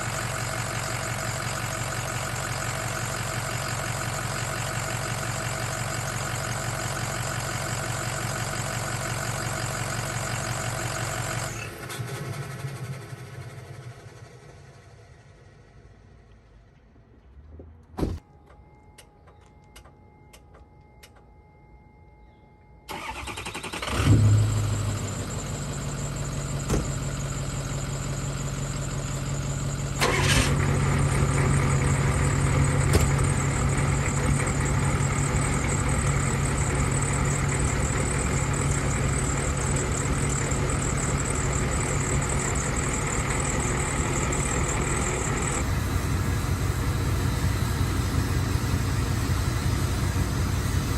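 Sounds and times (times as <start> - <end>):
diesel engine cranking and idling: 0.0 - 21.4, 22.8 - 50.9
short thump: 18.0 - 18.2, 26.7 - 27.0, 32.9 - 33.3.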